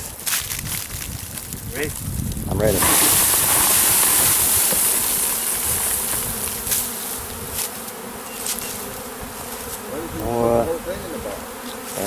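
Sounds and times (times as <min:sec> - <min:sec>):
bee swarm buzzing: 0:02.5 - 0:12.0.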